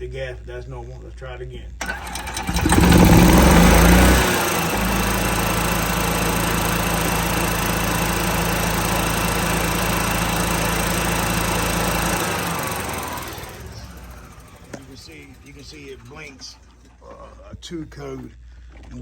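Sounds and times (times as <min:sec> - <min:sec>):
golf cart engine running fast: 0:01.8 - 0:17.0.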